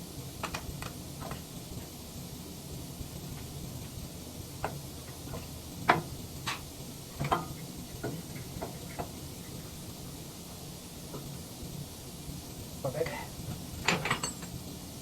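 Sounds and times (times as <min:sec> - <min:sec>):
clinks and taps on steel: 0:13.8 - 0:14.6.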